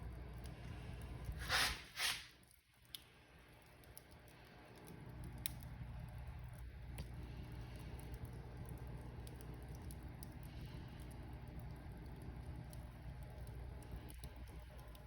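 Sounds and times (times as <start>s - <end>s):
fire popping: 0.0s - 15.0s
wood fire crackling: 0.0s - 15.0s
fire hissing bursts: 0.7s - 2.4s.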